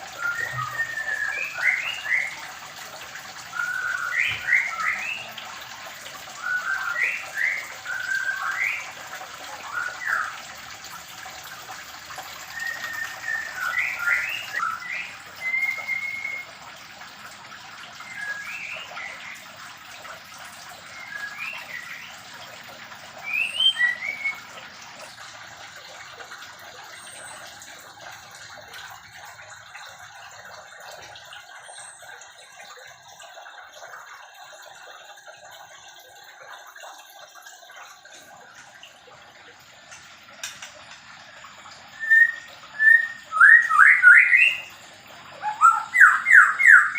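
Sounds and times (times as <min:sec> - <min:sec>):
birds whistling chirps: 0:00.0 - 0:02.5, 0:03.4 - 0:05.5, 0:06.3 - 0:10.4, 0:12.3 - 0:16.6, 0:17.9 - 0:19.5, 0:20.8 - 0:22.4, 0:23.2 - 0:25.1, 0:41.3 - 0:44.8, 0:45.4 - 0:46.9.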